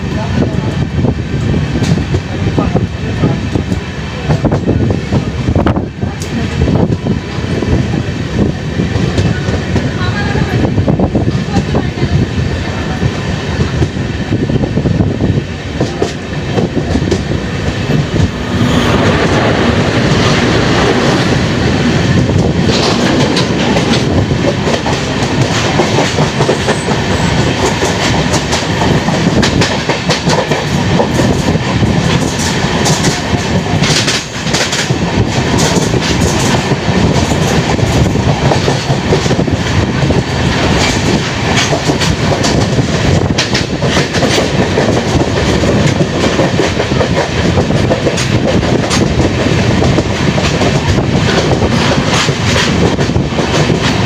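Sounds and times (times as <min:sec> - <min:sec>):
train coaches rumbling: 0:00.0 - 0:54.0
wheels clicking over rail joints: 0:22.3 - 0:39.5.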